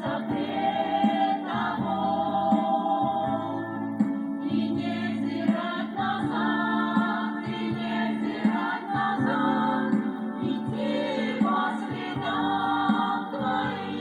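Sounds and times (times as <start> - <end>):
voices singing together: 0.0 - 14.0
worship band playing: 0.0 - 14.0.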